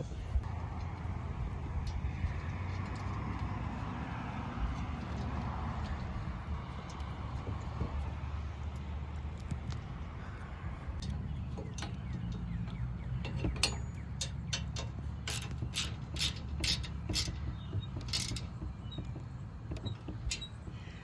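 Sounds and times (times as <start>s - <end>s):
wrench clicking on metal: 13.3s - 19.1s.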